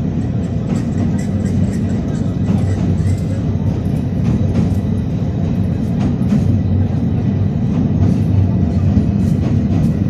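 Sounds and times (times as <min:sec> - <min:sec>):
train rumbling on rails: 0:00.0 - 0:10.0
faint rail clicks: 0:00.2 - 0:06.6.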